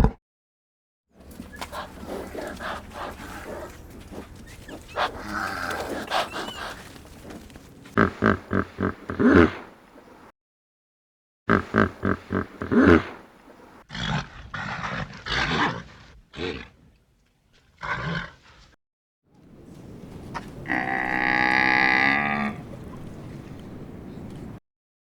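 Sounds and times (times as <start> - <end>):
rough animal calls: 1.2 - 9.7, 20.3 - 23.0
long pitched animal call: 20.6 - 22.8.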